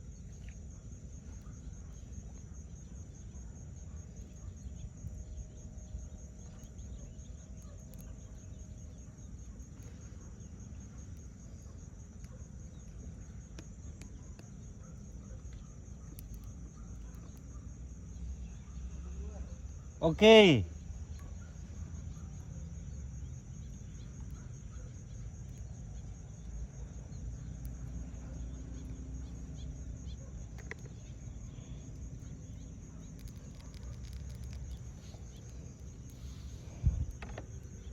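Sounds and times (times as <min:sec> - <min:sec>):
insect chirping: 0:00.0 - 0:37.9
faint held call: 0:20.0 - 0:20.7
low rumble of wind or water: 0:30.8 - 0:37.9.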